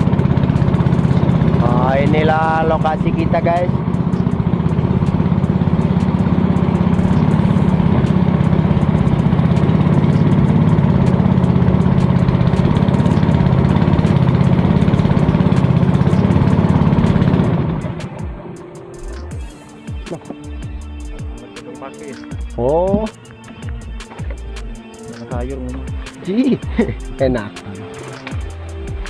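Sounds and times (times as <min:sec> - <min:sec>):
motorboat engine running: 0:00.0 - 0:29.0.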